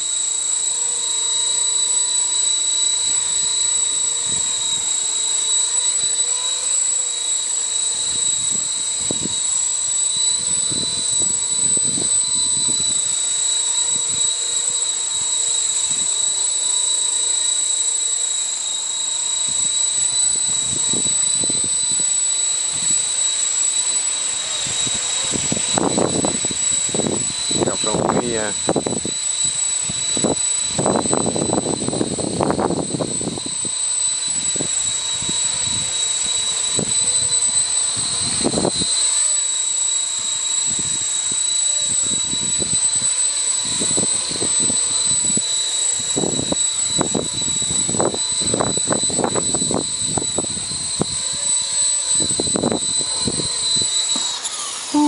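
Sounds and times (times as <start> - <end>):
helicopter motor whine: 0.0 - 55.0
wind buffeting microphone: 4.2 - 4.7, 8.1 - 9.4, 10.3 - 13.1, 24.7 - 33.7, 43.6 - 51.4, 52.1 - 53.9.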